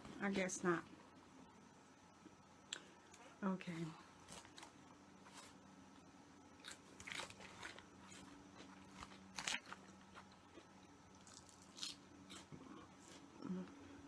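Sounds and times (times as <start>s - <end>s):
faint steady hum: 0.0s - 14.0s
crunchy chewing of vegetables: 6.4s - 13.8s.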